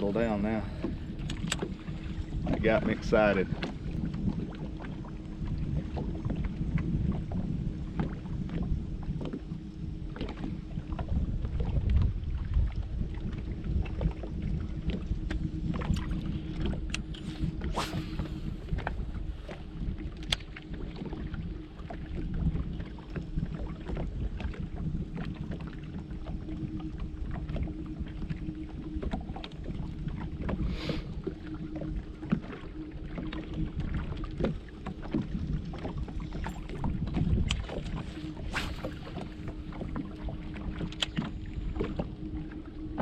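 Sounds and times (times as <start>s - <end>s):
boat engine rumble: 0.0s - 43.0s
low hum: 0.0s - 43.0s.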